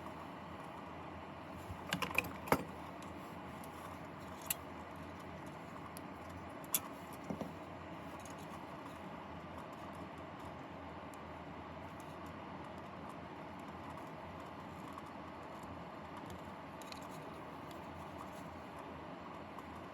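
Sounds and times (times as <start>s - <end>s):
small parts clicking and tapping: 1.8s - 4.6s, 5.4s - 8.6s, 14.8s - 18.4s.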